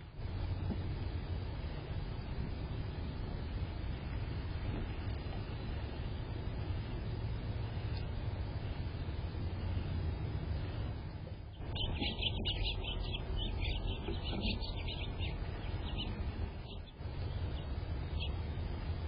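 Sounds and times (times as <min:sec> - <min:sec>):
low background rumble: 0:00.0 - 0:19.0
small bird chirping: 0:11.4 - 0:18.6.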